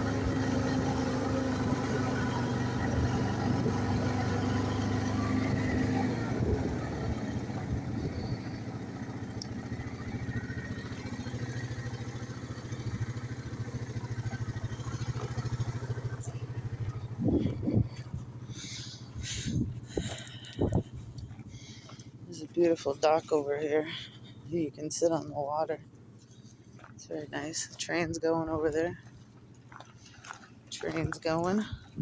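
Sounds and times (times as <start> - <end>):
atv engine running: 0.0 - 32.0.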